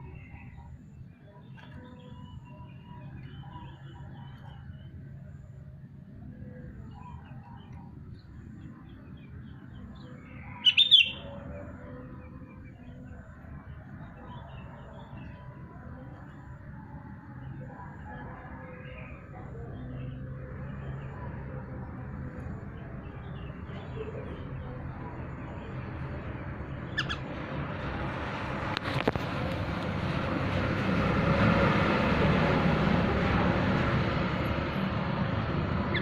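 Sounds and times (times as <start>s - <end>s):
bird calling: 10.5s - 11.4s, 26.9s - 27.3s.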